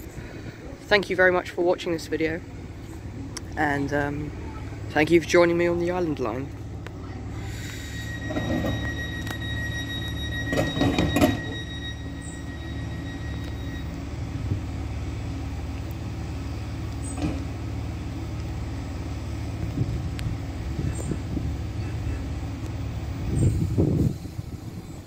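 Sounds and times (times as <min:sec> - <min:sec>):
electric train equipment hum: 0:00.0 - 0:25.0
steady high tone: 0:06.9 - 0:14.9.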